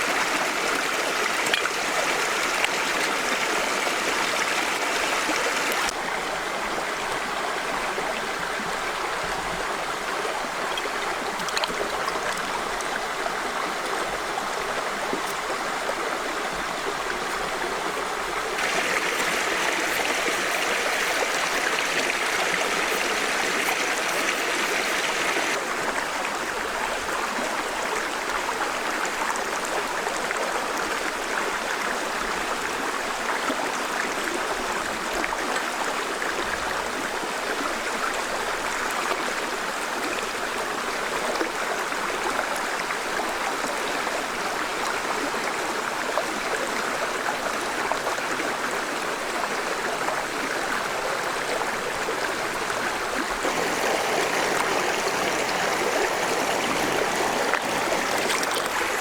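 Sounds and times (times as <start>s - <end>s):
running water rushing: 0.0s - 6.0s, 10.5s - 26.6s, 52.2s - 59.0s.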